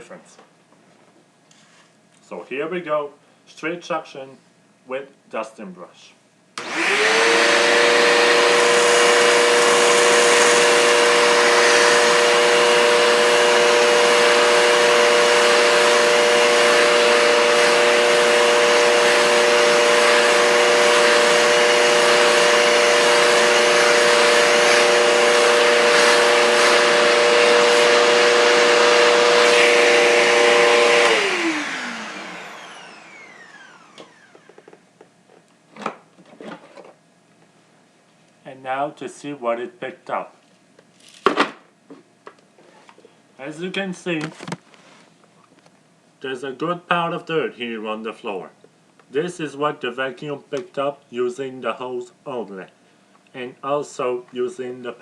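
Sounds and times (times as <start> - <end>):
vacuum cleaner motor whining: 6.6 - 34.8.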